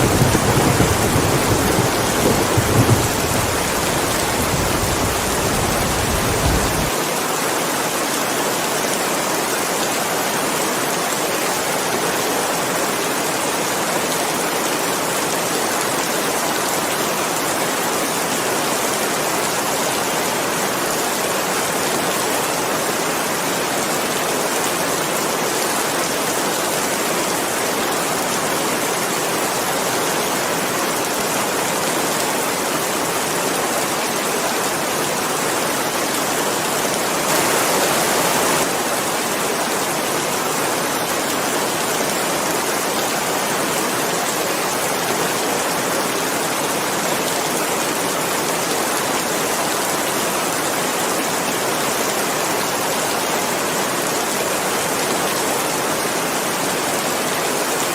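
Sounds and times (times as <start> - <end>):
low thunder rumble: 0.0 - 6.9
heavy rain hissing: 0.0 - 7.3, 32.6 - 42.4.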